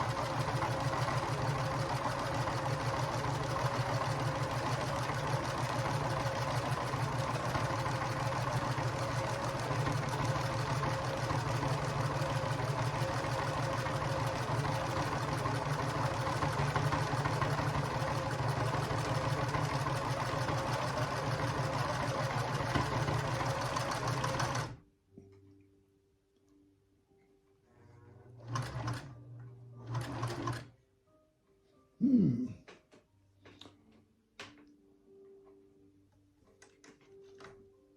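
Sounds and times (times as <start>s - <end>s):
sewing machine running: 0.0s - 24.8s, 28.4s - 29.1s, 29.8s - 30.7s.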